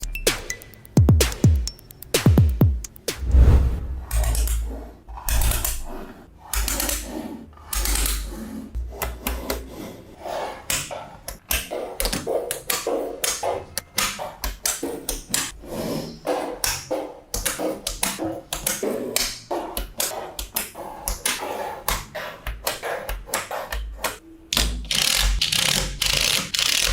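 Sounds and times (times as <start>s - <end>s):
magnetic balls clicking together: 0.0s - 3.2s.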